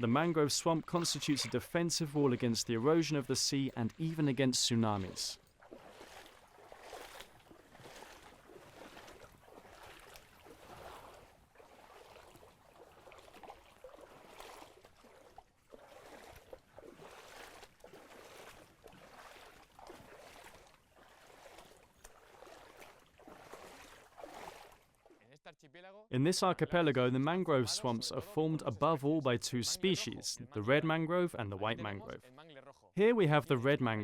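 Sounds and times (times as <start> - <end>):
water splashing and sloshing: 0.0 - 25.4.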